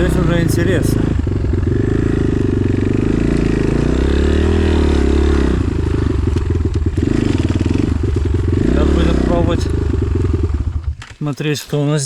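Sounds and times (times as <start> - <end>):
motorcycle engine revving: 0.0 - 11.1.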